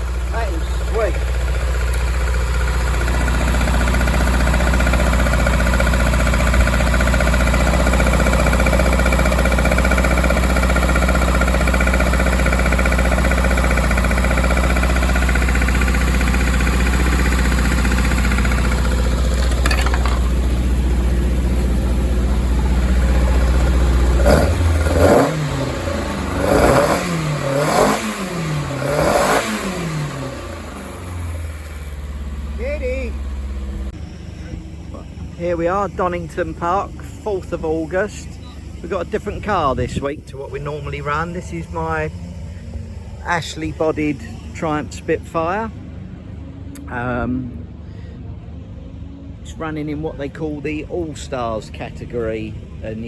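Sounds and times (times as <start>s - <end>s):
engine revving: 0.0s - 47.8s
race car engine idling: 0.0s - 53.0s.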